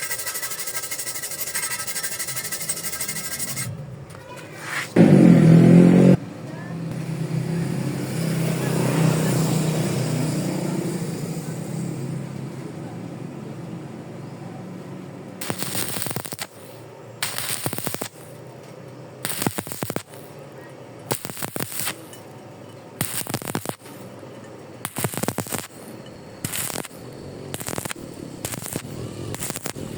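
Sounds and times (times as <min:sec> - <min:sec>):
welding arc crackling: 0:15.4 - 0:18.5, 0:19.2 - 0:20.4, 0:21.0 - 0:22.3, 0:23.0 - 0:24.2, 0:24.8 - 0:29.9
motor humming: 0:24.9 - 0:29.9.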